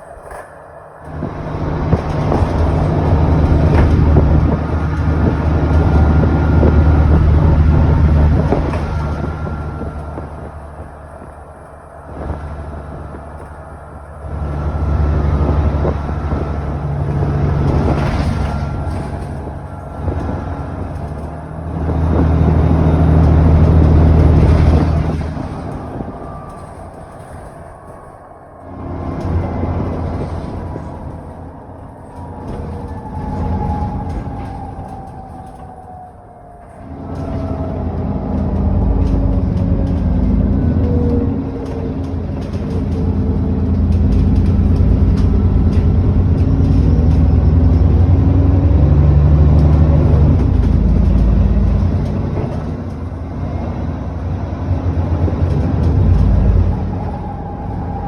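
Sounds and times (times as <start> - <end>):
bus engine pulling hard: 0.0 - 58.0.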